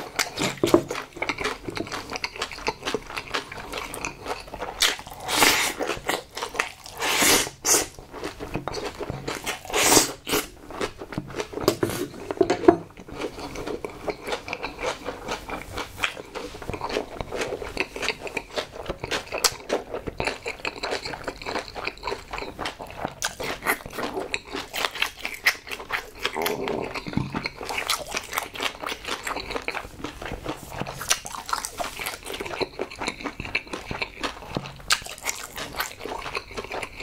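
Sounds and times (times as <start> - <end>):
slurping: 3.8 - 8.0, 8.7 - 12.4
wet chewing and lip smacks: 13.0 - 37.0.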